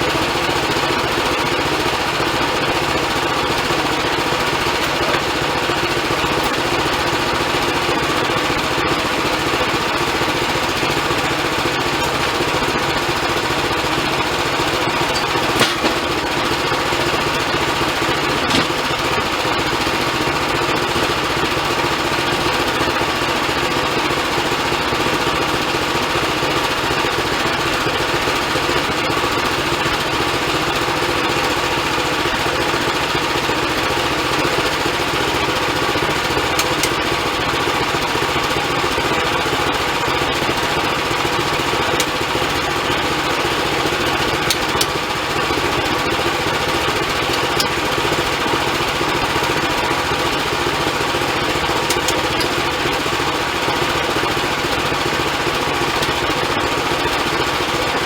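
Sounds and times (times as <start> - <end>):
band sawmill running: 0.0 - 58.0.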